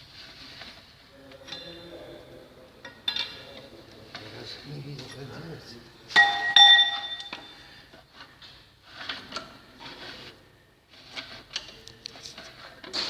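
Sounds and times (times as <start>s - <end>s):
faint scraping: 7.5s - 12.9s.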